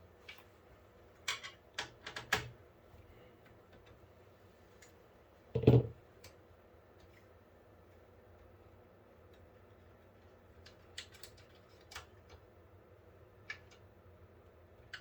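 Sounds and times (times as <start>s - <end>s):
loud knock: 5.6s - 5.9s.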